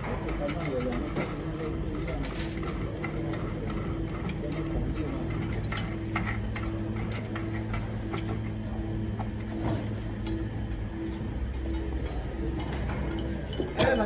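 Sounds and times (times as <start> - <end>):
tools clicking and tapping: 0.0 - 8.6
low steady hum: 0.0 - 14.0
pulsing low tone: 0.0 - 14.0.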